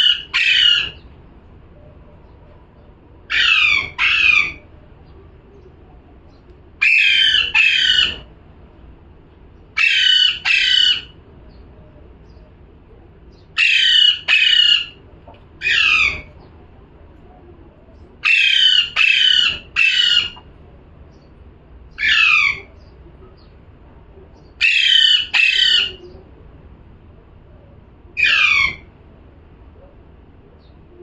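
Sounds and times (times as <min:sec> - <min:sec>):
parrot squawking: 0:00.0 - 0:01.0, 0:03.3 - 0:04.7, 0:06.8 - 0:08.3, 0:09.8 - 0:11.2, 0:13.6 - 0:15.0, 0:15.6 - 0:16.4, 0:18.2 - 0:20.4, 0:21.9 - 0:22.8, 0:24.6 - 0:26.2, 0:28.2 - 0:28.9.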